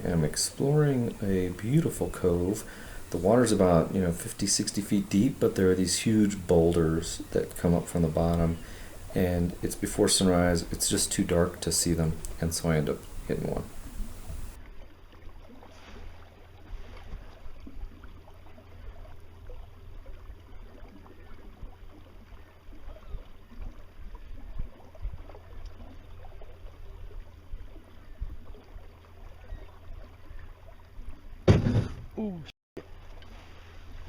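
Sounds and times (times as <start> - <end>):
water lapping against boat hull: 0.0 - 32.0
wind rumble on microphone: 13.0 - 14.6.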